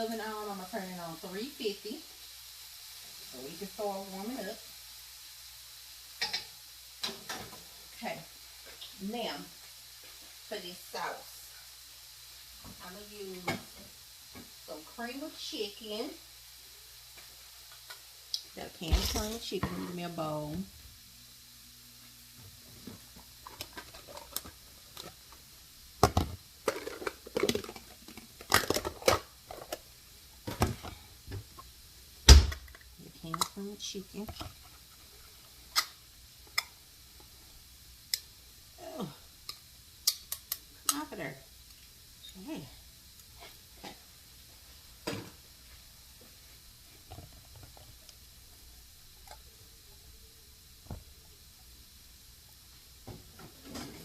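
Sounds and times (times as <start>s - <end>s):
kitchen items clattering: 18.9s - 20.0s.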